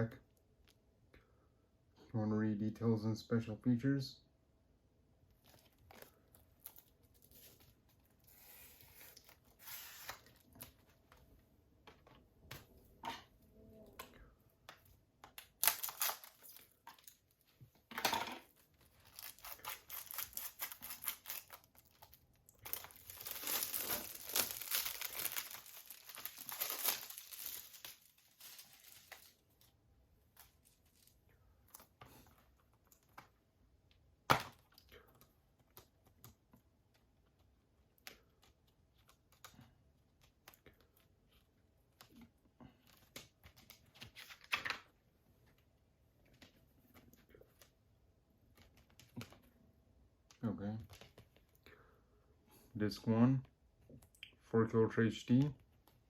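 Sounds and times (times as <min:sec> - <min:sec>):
plastic wrapping tearing and crinkling: 0:05.4 - 0:10.7, 0:15.4 - 0:17.3, 0:18.8 - 0:29.4.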